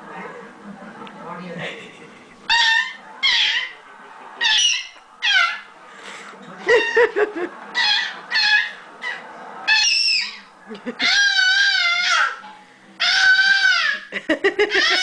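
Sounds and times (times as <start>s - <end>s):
parrot screeching: 2.5s - 3.8s, 4.4s - 5.7s, 6.7s - 7.1s, 7.7s - 12.4s, 13.0s - 15.0s.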